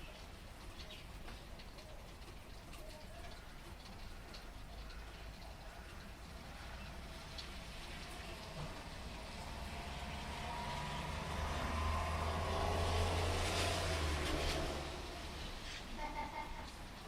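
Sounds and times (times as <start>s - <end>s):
water drips: 0.0s - 15.5s
steady rain falling: 0.0s - 17.0s
car passing: 6.6s - 15.9s.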